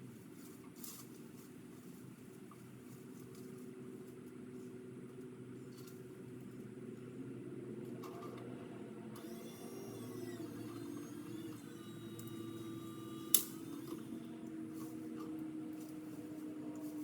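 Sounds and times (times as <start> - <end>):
small motor whining: 7.9 - 17.0.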